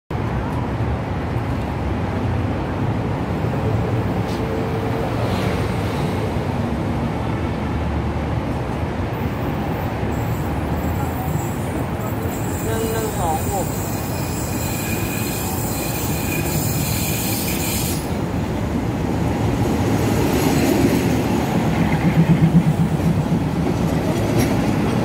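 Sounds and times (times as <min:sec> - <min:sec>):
traffic: 0:00.1 - 0:25.0
train rumble: 0:00.2 - 0:25.0
train wheels squealing: 0:10.1 - 0:18.2.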